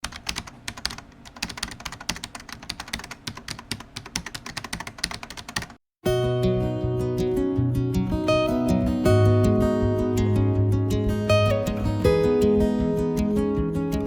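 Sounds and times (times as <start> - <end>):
rapid keyboard-like clicking: 0.0 - 5.8
strummed acoustic guitar music: 6.0 - 14.0.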